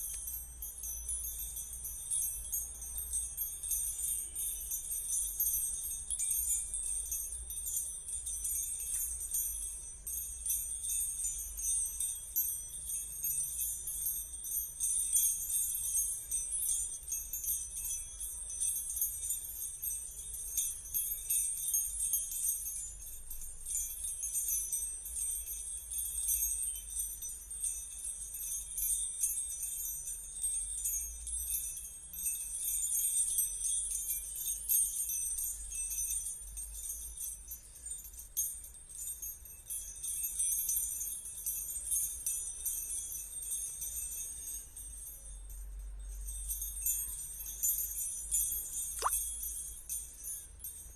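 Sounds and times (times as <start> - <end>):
bell-like jingling shimmer: 0.0 - 50.9
fine rapid ticks: 49.0 - 49.2.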